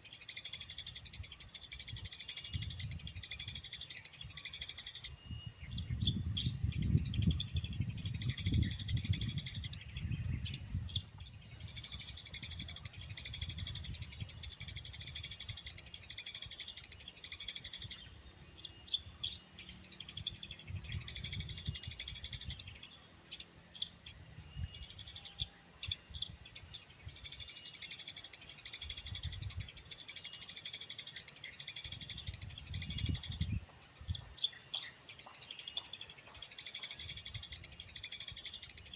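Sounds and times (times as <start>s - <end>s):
high-pitched insect drone: 0.0s - 38.9s
small birds chirping: 0.0s - 38.9s.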